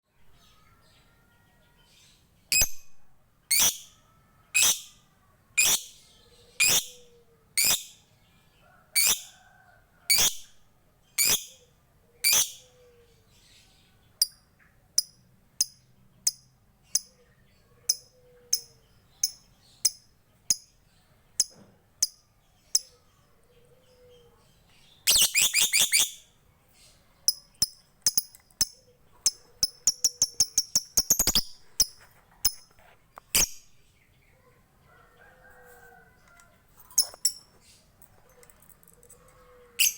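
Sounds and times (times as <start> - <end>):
lovebird chirping and chattering: 2.5 - 4.0, 4.6 - 5.0, 5.6 - 8.1, 9.0 - 9.3, 10.1 - 10.6, 11.2 - 11.6, 12.2 - 12.8, 15.0 - 20.8, 21.4 - 23.2, 24.9 - 33.9, 37.0 - 37.8.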